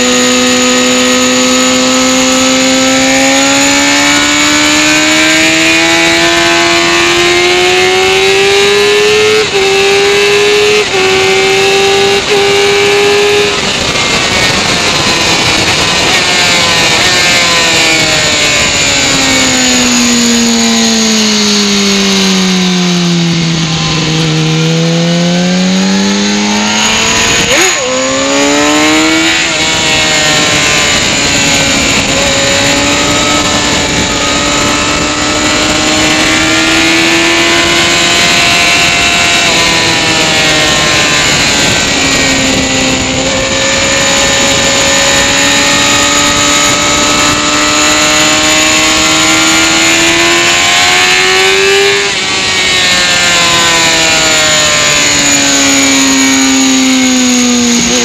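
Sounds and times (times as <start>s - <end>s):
motorcycle engine running hard: 0.0s - 58.0s
wind rushing over microphone: 0.0s - 58.0s.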